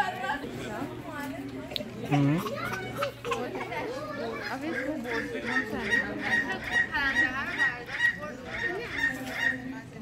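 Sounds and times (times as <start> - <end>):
faint voices: 0.0 - 10.0.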